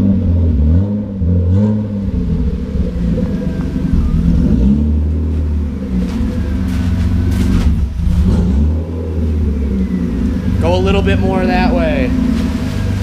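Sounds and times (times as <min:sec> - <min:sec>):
car engine running at low revs: 0:00.0 - 0:13.0
short rustle: 0:05.2 - 0:08.0.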